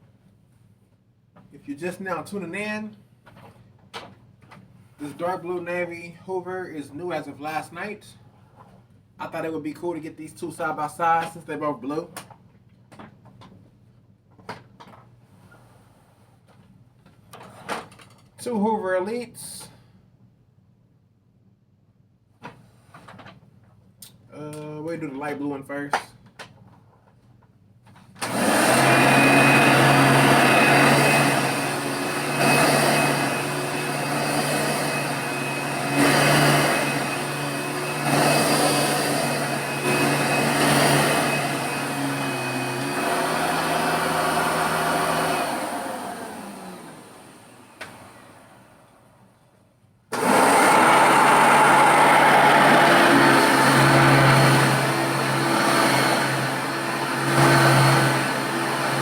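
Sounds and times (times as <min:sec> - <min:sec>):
vacuum motor winding down: 0:28.2 - 0:48.8, 0:50.1 - 0:59.0
upright vacuum cleaner running: 0:28.2 - 0:49.0, 0:50.1 - 0:59.0
vacuum cleaner starting: 0:28.2 - 0:49.2, 0:50.1 - 0:59.0.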